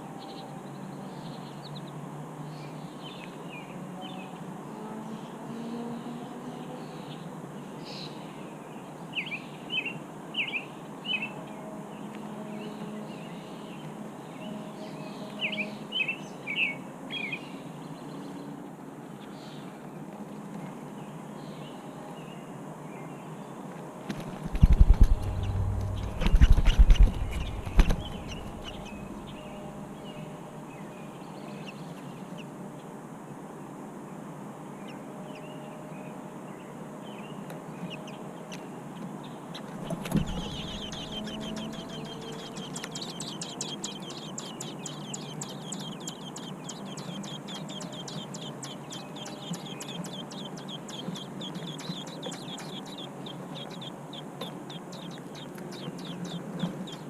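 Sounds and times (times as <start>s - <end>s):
nestlings chirping: 24.1s - 29.8s, 39.5s - 57.0s.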